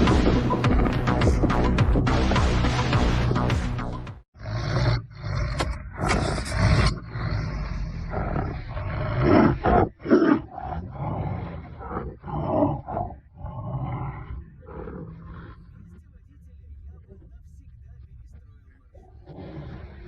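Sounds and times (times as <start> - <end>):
large animal roaring and growling: 4.4 - 15.8, 19.1 - 20.0.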